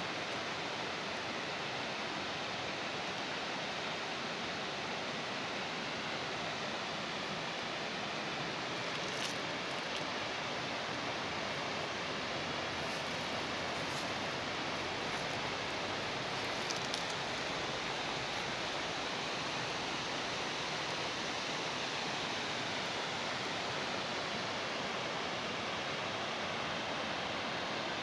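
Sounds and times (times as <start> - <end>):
stream water rushing: 0.0 - 28.0.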